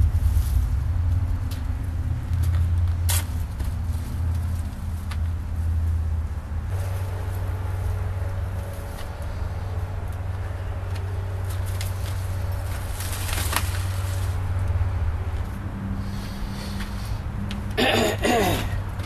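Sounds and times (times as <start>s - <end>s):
steady low rumble: 0.0s - 19.0s
foliage rustling and snapping: 1.4s - 6.0s, 6.8s - 15.7s.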